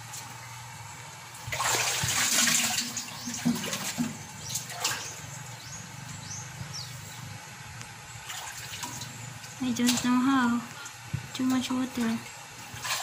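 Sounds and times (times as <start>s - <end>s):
water gushing and splashing: 1.4s - 5.5s.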